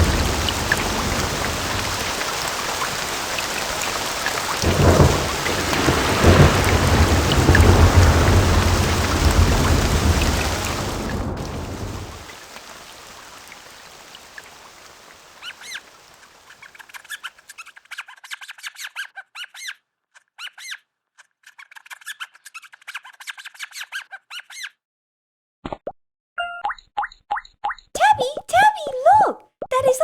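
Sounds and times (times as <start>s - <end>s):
rain: 0.0s - 17.7s.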